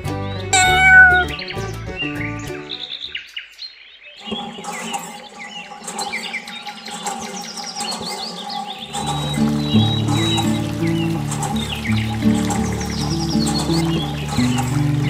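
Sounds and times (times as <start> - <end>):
background music: 0.0 - 3.1, 9.0 - 15.0
small birds chirping: 0.5 - 15.0.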